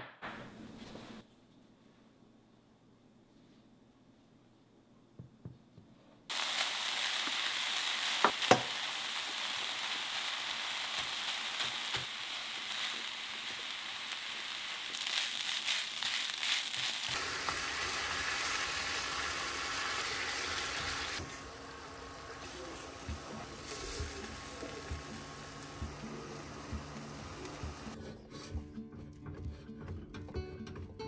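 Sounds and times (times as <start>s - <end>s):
food sizzling in a frying pan: 6.3s - 28.0s.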